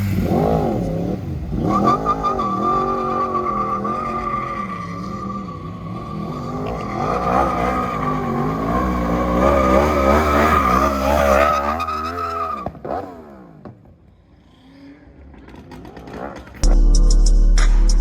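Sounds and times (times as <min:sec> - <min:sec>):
car engine revving: 0:00.0 - 0:13.5
car tyres squealing: 0:01.5 - 0:13.0.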